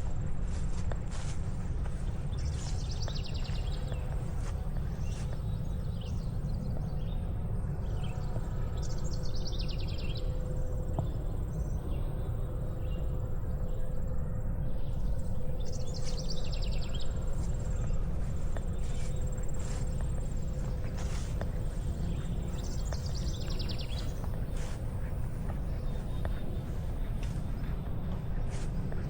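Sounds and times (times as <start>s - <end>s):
high insect drone: 2.4s - 29.0s
low rumble: 10.2s - 29.0s.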